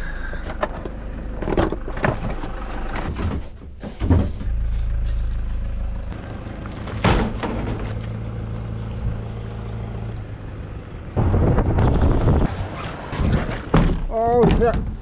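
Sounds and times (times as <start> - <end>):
vehicle engine idling: 0.0 - 11.3.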